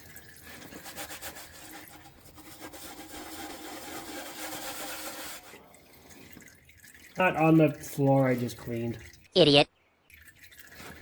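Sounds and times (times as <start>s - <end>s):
plastic pan scraping on concrete: 0.5s - 5.6s.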